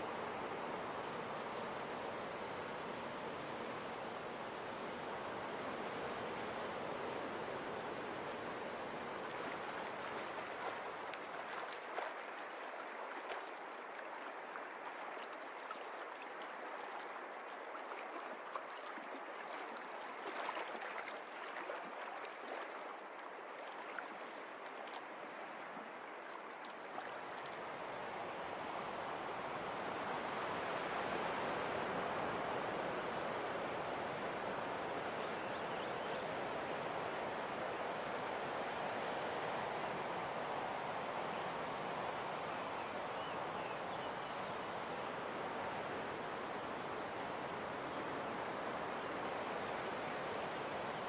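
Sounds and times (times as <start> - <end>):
sea water washing: 0.0 - 51.0
small crackles and splashes: 9.0 - 27.9.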